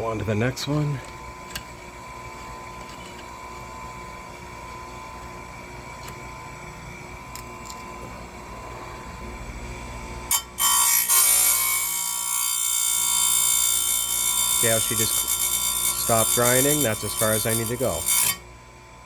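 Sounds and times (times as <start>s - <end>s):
grinding wheel grinding chain tooth: 10.3s - 18.4s
grinding wheel whining: 10.3s - 18.4s.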